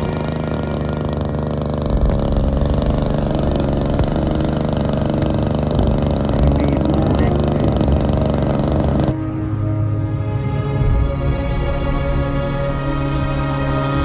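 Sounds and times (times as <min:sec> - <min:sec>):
model aircraft engine idling: 0:00.0 - 0:09.2.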